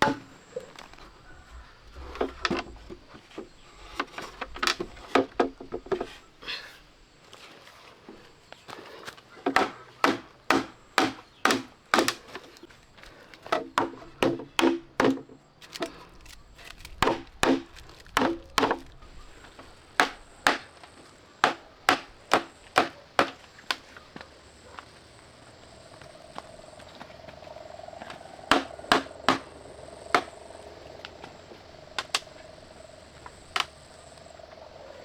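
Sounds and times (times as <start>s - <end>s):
tool striking wood: 9.5s - 12.2s, 28.5s - 29.5s.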